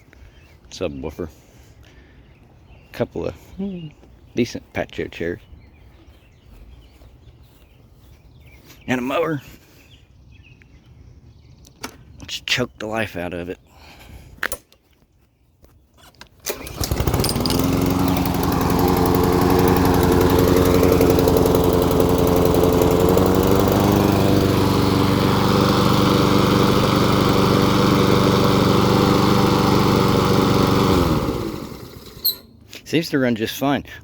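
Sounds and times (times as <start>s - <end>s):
lawn mower engine running: 16.4s - 32.6s.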